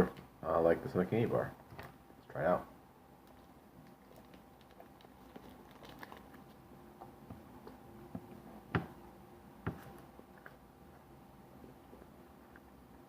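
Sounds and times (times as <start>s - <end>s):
chewing and crunching candy: 3.2s - 6.6s.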